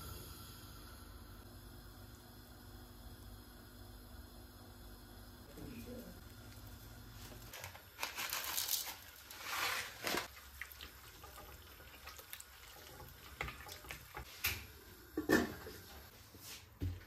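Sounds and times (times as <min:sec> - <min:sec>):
water splashing from tap: 0:10.2 - 0:14.6.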